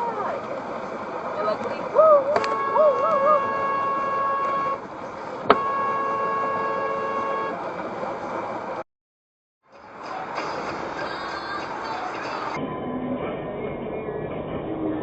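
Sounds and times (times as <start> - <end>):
road noise: 0.0 - 8.9, 9.6 - 15.0
car horn blasts: 2.3 - 7.7.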